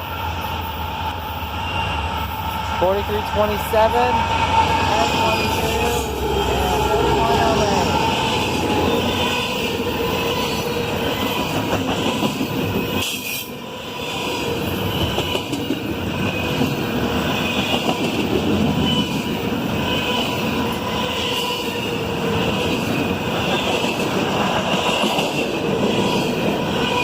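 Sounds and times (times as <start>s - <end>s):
freight train wheels on rails: 0.0s - 27.0s.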